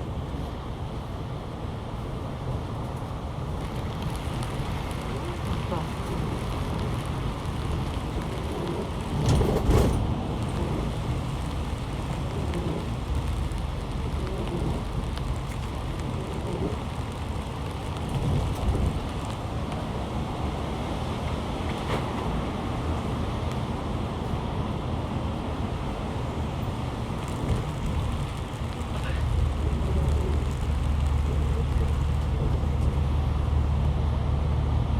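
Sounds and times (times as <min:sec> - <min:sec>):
heavy rain falling: 0:03.4 - 0:34.1
low rumble: 0:26.3 - 0:34.9.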